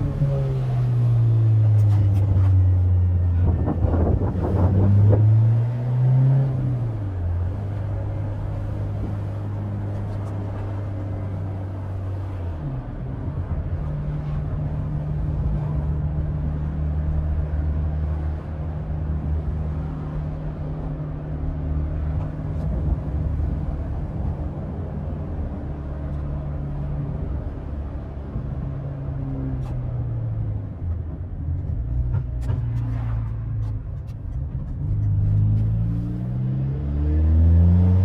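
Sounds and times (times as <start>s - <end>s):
car engine revving: 32.4s - 38.0s.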